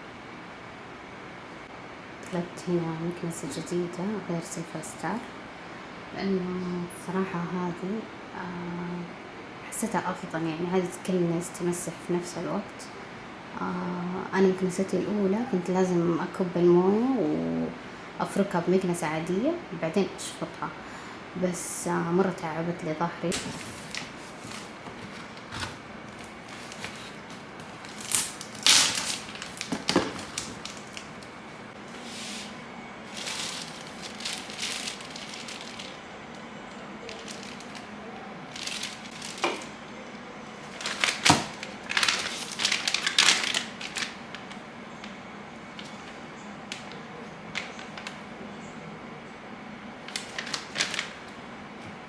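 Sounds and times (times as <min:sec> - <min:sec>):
plastic and cardboard rustling: 0:23.3 - 0:36.4, 0:37.0 - 0:37.9, 0:38.5 - 0:39.8, 0:40.6 - 0:48.3, 0:50.1 - 0:52.0.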